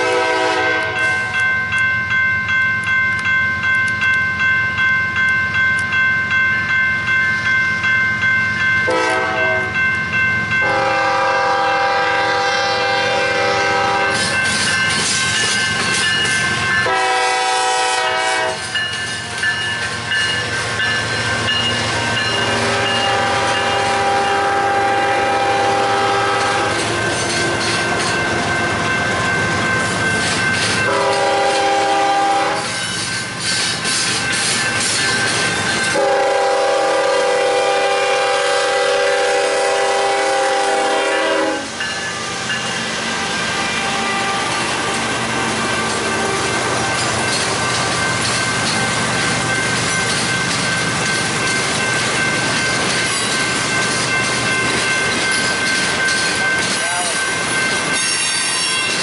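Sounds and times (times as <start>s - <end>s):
locomotive air horn blasts: 0.0s - 1.2s, 8.9s - 9.8s, 10.6s - 14.3s, 16.8s - 18.7s, 22.4s - 26.8s, 30.9s - 32.8s, 35.9s - 42.5s, 43.2s - 45.2s
crossing bell ringing: 0.0s - 59.0s
freight train rumble: 0.0s - 59.0s.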